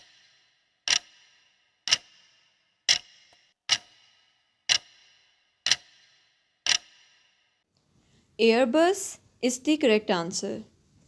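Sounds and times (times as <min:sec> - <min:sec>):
timer clock ticking: 0:00.0 - 0:07.5.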